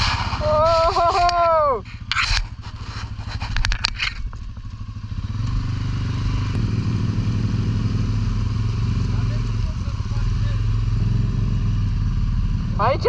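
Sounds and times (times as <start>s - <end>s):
scrapes and clatters: 0.0s - 4.7s
atv engine running: 0.0s - 13.0s.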